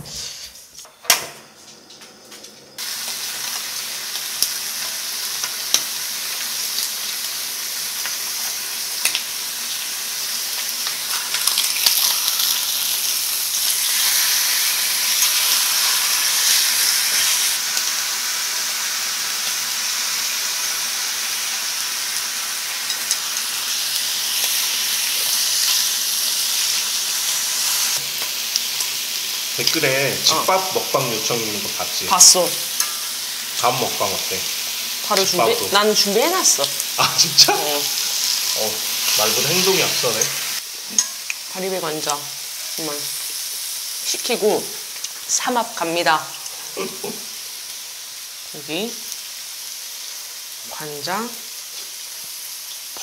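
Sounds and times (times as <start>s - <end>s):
food sizzling on a grill pan: 2.7s - 53.0s.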